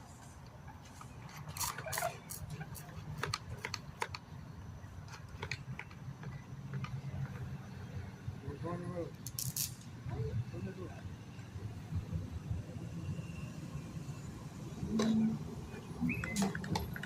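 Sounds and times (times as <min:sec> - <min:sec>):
sharp clicks and taps: 0:02.7 - 0:04.3.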